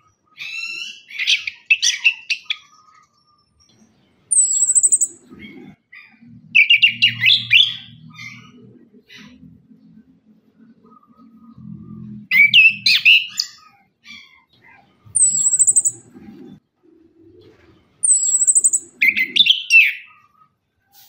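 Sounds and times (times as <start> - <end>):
high thin bird trills: 4.3 - 5.2, 15.2 - 16.1, 18.0 - 20.1
thrush whistled song: 4.3 - 5.3, 12.3 - 13.5, 15.2 - 16.1, 18.0 - 20.1.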